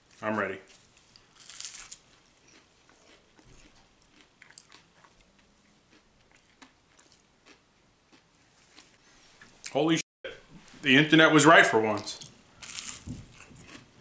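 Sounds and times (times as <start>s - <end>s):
faint crunchy chewing: 0.0s - 9.8s, 11.9s - 14.0s
crunchy bite of fried fish: 1.3s - 5.2s, 5.9s - 8.9s, 12.6s - 13.9s.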